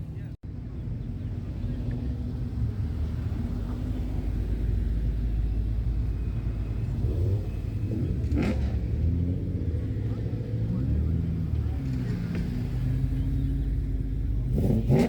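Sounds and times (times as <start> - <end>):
car engines rumbling: 0.0 - 15.0.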